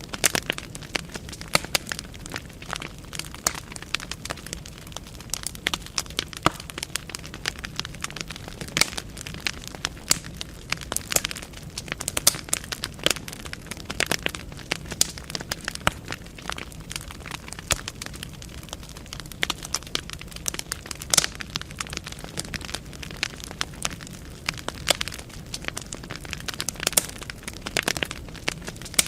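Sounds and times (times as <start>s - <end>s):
logs crackling and popping: 0.0s - 29.0s
low rumble of flame: 0.0s - 29.0s.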